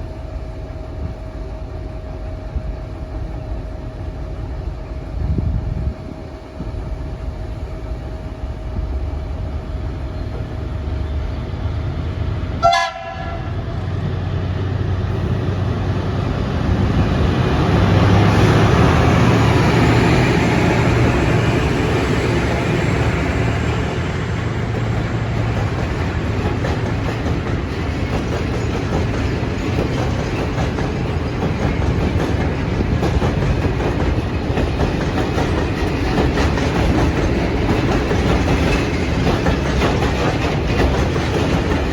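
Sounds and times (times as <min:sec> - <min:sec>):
train rumbling by: 0:00.0 - 0:41.9
locomotive horn blast: 0:12.6 - 0:13.8
wheels clattering over rail joints: 0:24.4 - 0:41.9.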